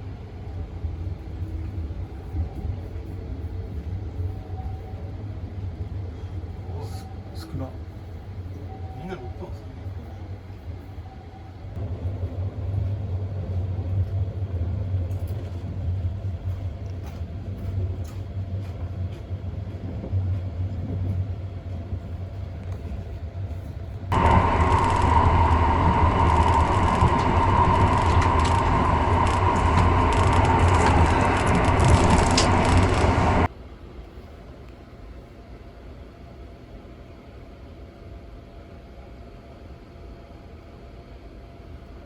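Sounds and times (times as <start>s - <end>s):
train running rumble: 0.0s - 33.5s.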